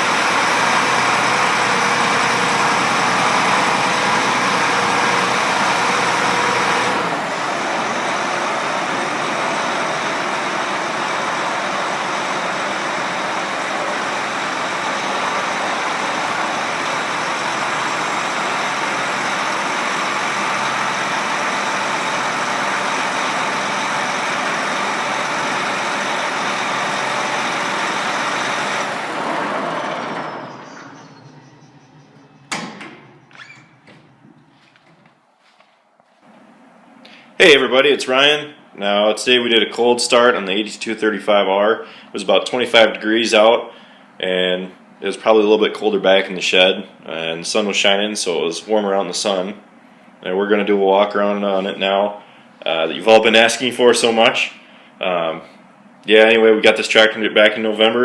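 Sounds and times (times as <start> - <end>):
tractor diesel engine running: 0.0 - 38.7.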